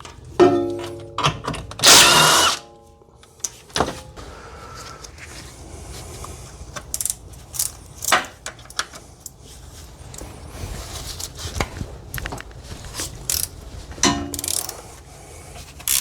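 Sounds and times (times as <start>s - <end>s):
power impact tool burst: 1.8s - 2.7s.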